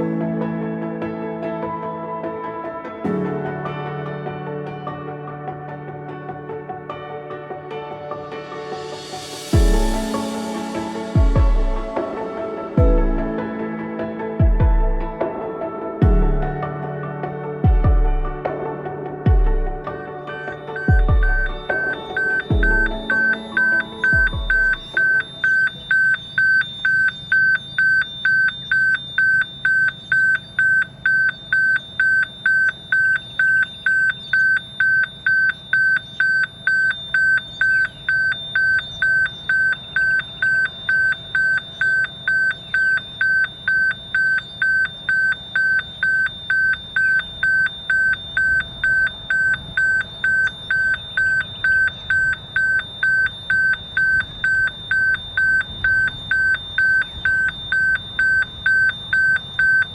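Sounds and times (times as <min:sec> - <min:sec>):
level crossing alarm beeping: 0:20.0 - 0:59.9.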